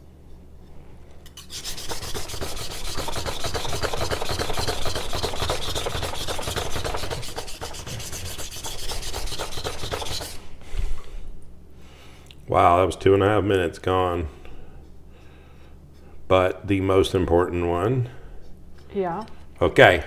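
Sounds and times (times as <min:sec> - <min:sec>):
knife scraping on whetstone: 0:01.2 - 0:10.5.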